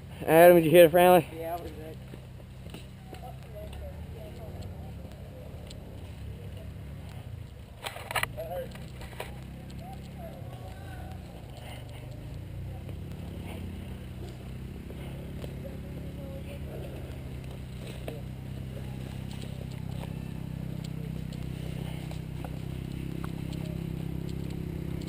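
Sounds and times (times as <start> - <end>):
low engine-like drone: 3.2 - 25.0
light clicks and scrapes: 5.5 - 12.3.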